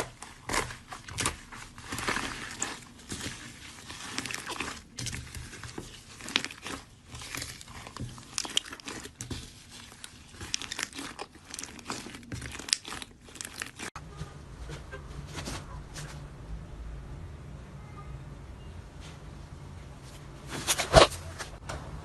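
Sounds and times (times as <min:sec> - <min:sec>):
slime crackling and popping: 0:00.0 - 0:14.0.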